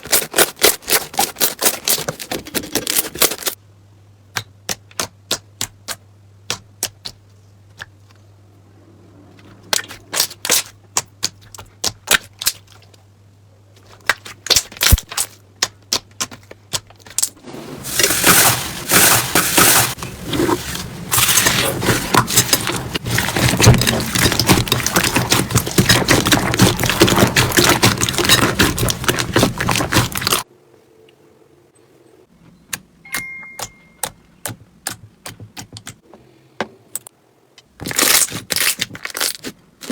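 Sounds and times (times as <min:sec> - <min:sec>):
slime squishing and clicking: 0:21.2 - 0:30.4.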